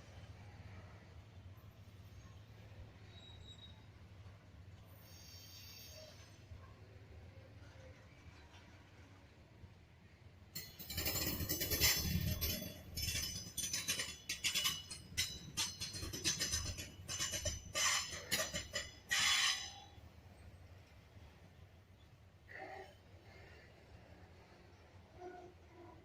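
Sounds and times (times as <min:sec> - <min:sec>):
low train rumble: 0:00.0 - 0:26.0
metallic squealing of train wheels: 0:01.7 - 0:08.8, 0:10.6 - 0:21.3.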